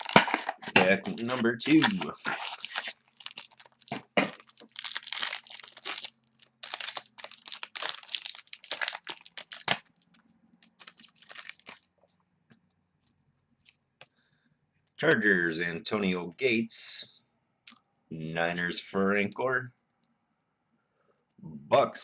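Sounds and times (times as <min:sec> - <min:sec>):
cards rustling: 0:00.0 - 0:11.9
wrapper tearing and crinkling: 0:00.0 - 0:11.9.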